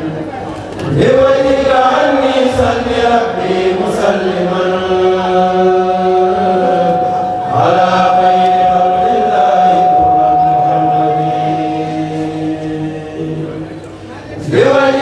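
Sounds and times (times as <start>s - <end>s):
choir chanting unaccompanied: 0.0s - 15.0s.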